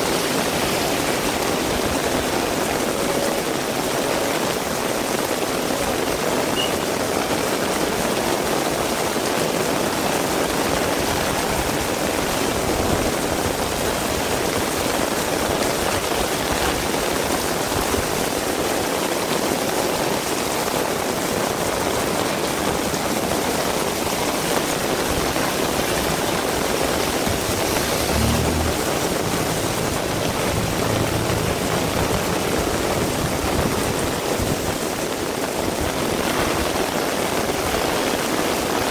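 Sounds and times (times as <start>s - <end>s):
heavy rain falling: 0.0s - 38.9s
low rumble: 25.6s - 34.6s.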